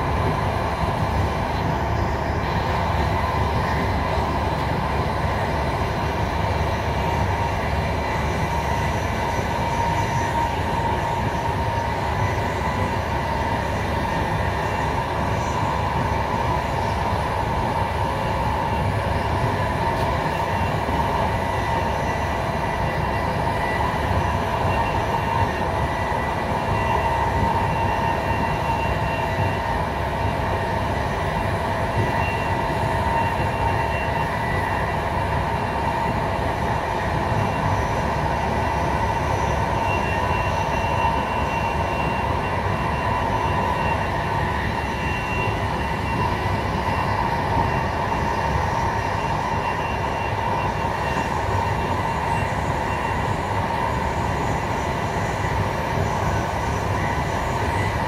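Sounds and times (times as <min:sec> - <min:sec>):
constant whine: 0:00.0 - 0:58.0
train wheels rumbling on rail: 0:00.0 - 0:58.0.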